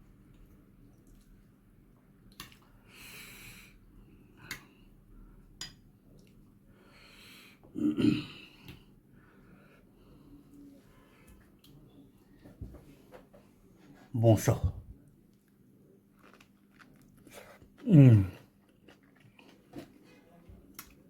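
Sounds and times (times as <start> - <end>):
breathing and chewing: 16.2 - 21.0.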